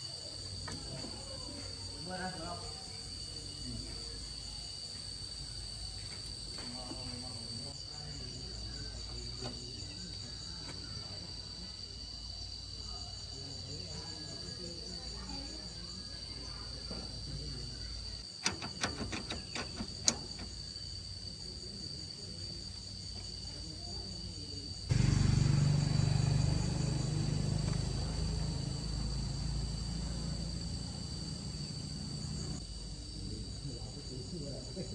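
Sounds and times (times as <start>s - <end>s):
insect chorus buzzing: 0.0s - 34.9s
sharp clicks: 18.4s - 20.5s
low rumbling: 24.9s - 32.6s.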